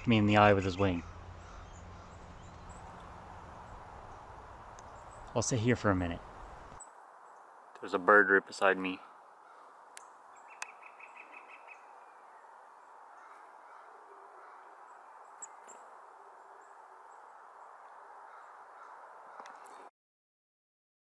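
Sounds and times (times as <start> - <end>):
songbird trilling: 0.0 - 8.0, 8.6 - 12.5
songbird chips: 1.5 - 8.0, 9.9 - 12.2
background hiss: 2.1 - 13.3.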